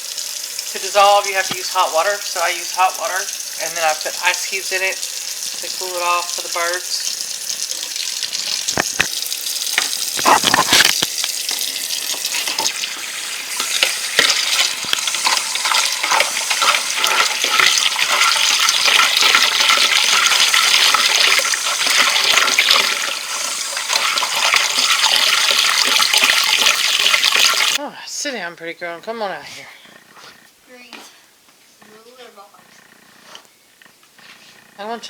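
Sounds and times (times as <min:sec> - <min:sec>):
tap water running into container: 0:00.0 - 0:27.8.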